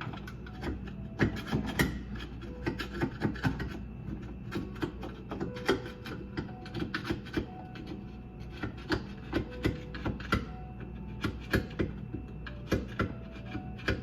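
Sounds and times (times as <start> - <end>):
scraping and knocking in garbage disposal: 0.0 - 10.5.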